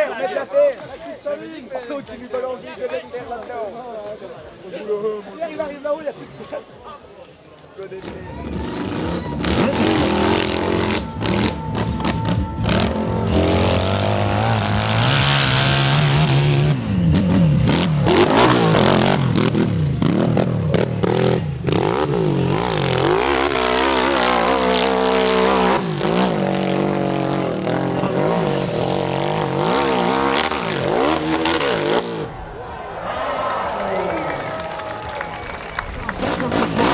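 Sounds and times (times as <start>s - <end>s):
motorcycle engines revving hard: 8.0s - 32.5s, 36.0s - 36.9s.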